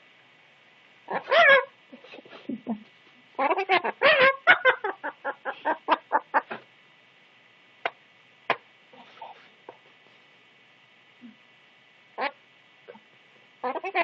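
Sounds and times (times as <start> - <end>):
parrot calling rapidly: 1.1 - 1.8, 3.4 - 4.9, 13.6 - 14.0.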